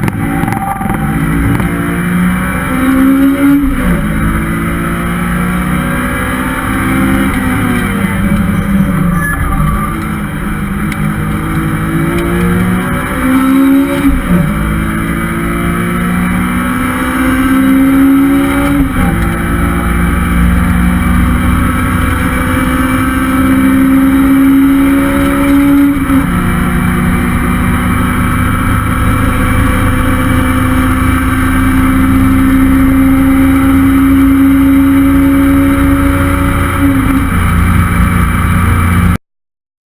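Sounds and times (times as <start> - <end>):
car engine accelerating: 0.0 - 39.2.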